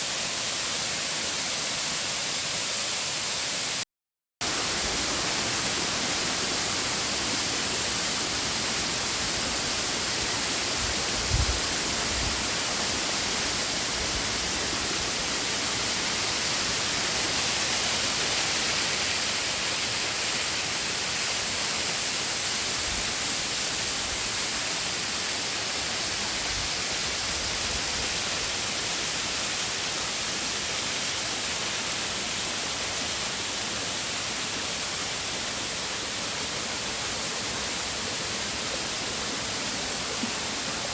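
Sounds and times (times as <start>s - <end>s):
waterfall rushing: 4.4s - 22.0s, 30.5s - 40.9s.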